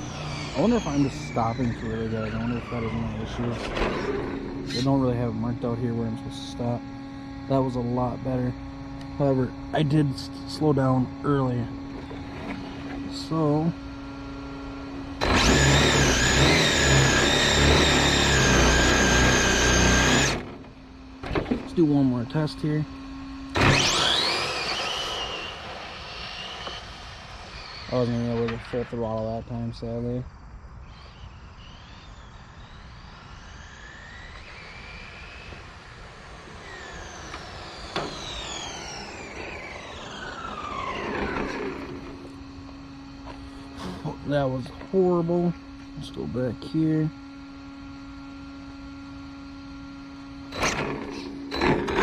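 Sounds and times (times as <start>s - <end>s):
tire and road noise: 0.0s - 29.8s
electric motor whining: 0.0s - 52.0s.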